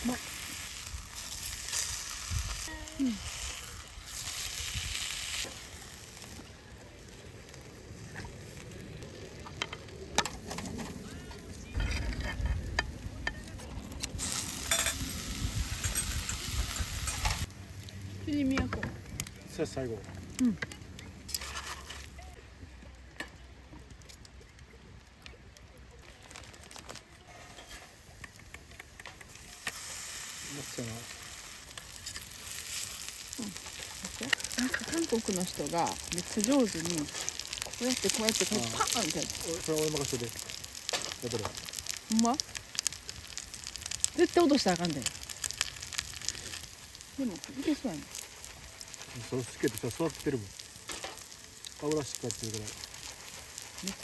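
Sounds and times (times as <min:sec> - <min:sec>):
food sizzling in a skillet: 0:00.0 - 0:09.6, 0:13.0 - 0:18.6, 0:26.2 - 0:54.0.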